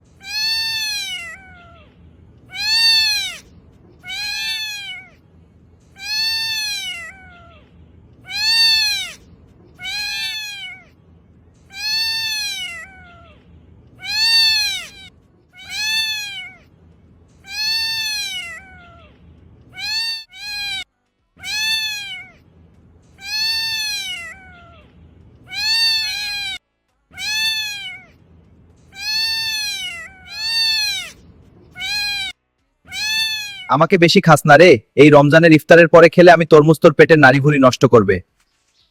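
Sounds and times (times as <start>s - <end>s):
cat meowing: 0.1s - 5.2s, 5.9s - 11.0s, 11.7s - 16.7s, 17.4s - 22.4s, 23.2s - 28.2s, 28.9s - 33.9s.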